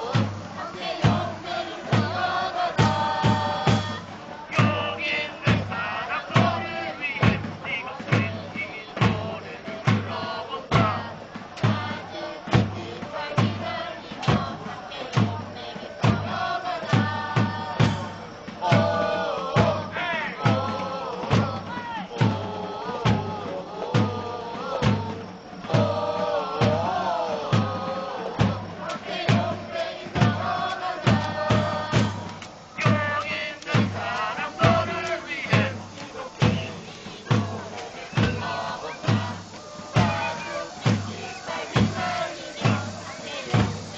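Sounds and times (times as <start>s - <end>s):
bass drum beats: 0.0s - 43.9s
crowd chanting: 0.0s - 43.9s.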